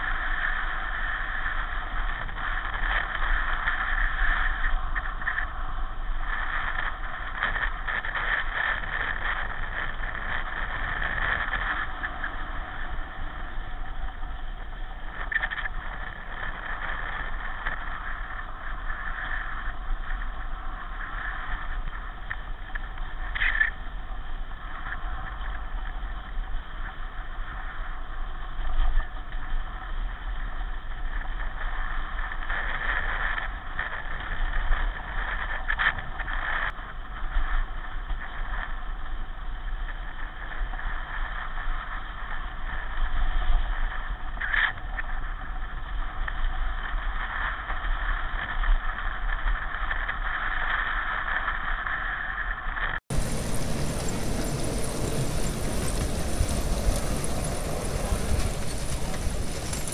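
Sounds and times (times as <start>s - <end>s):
pedal car running: 53.1s - 59.9s.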